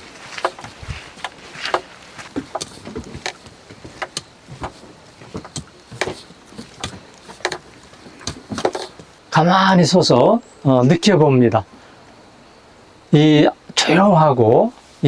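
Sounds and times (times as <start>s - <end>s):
hands patting bodies: 0.0s - 9.2s.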